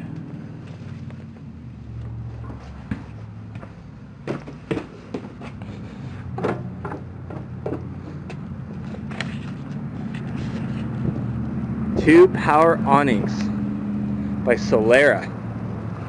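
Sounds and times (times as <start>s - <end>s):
knocks and clunks: 2.4s - 5.6s, 6.3s - 8.4s.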